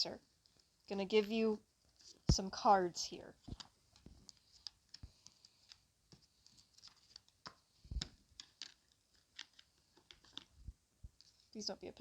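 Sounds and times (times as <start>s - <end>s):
playing cards clicking and sliding: 3.4s - 10.5s.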